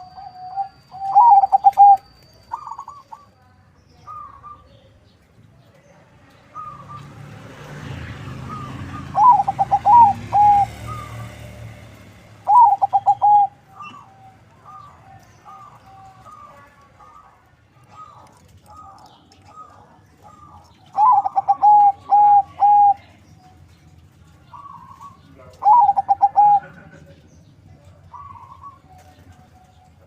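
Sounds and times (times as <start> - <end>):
dove cooing: 0.0 - 3.3, 8.4 - 11.6, 12.4 - 23.2, 24.5 - 30.0.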